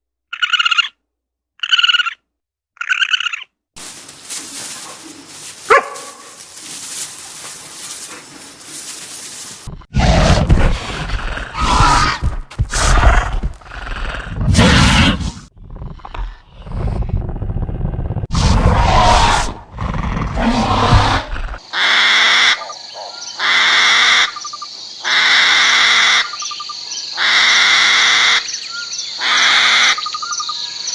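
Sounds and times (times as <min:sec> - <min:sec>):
deep animal calls: 0:02.8 - 0:26.4.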